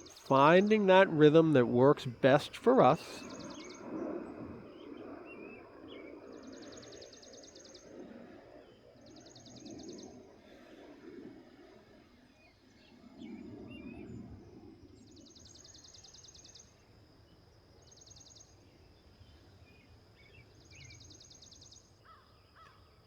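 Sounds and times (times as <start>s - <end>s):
soft low rush of noise: 0.0s - 9.0s
faint bird chirps: 2.5s - 10.4s.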